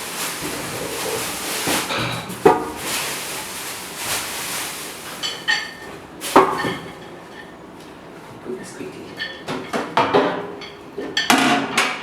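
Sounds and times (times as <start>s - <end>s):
knocks and clatter of handling: 0.0s - 7.5s.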